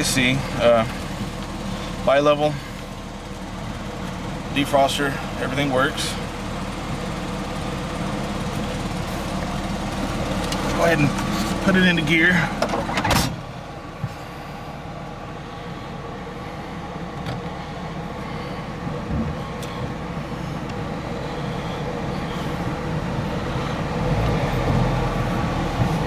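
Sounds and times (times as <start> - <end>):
car engine pulling away: 0.0 - 26.0.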